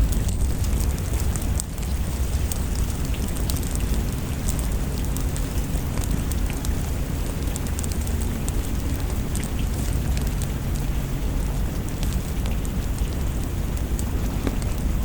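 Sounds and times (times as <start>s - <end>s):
rain: 0.0s - 15.0s
wood fire crackling: 0.0s - 15.0s.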